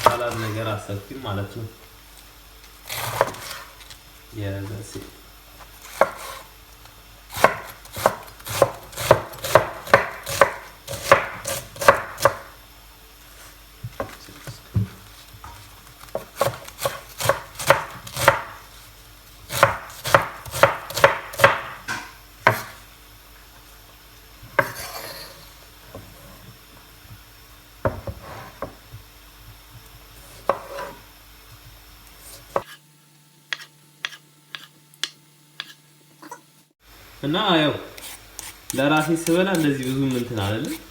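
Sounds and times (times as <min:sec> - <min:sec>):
knife chopping on cutting board: 0:00.0 - 0:00.5, 0:02.9 - 0:03.7, 0:05.8 - 0:06.5, 0:07.3 - 0:12.5, 0:16.1 - 0:18.6, 0:19.5 - 0:22.8, 0:24.6 - 0:25.3, 0:30.2 - 0:31.0, 0:32.3 - 0:32.8, 0:33.5 - 0:35.8, 0:38.0 - 0:40.9.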